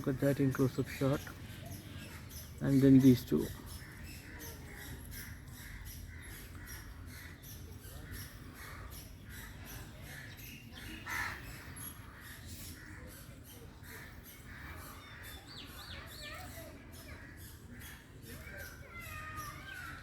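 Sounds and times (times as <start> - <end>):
bird squawk: 8.0 - 20.0.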